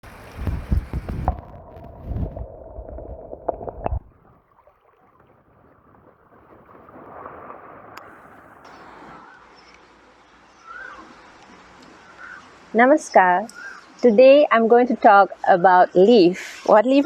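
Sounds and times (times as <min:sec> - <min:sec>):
wind buffeting microphone: 0:00.0 - 0:09.3.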